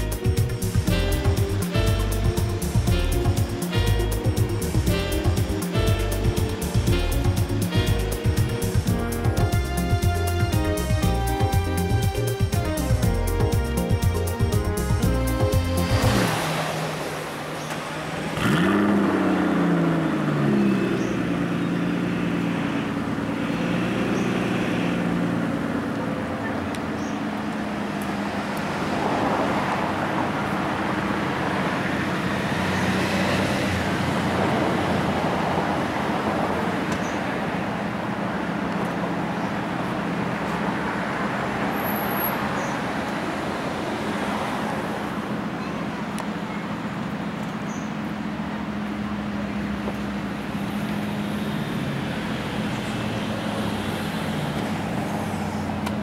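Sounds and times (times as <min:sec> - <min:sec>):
car engine idling: 0:45.0 - 0:56.0.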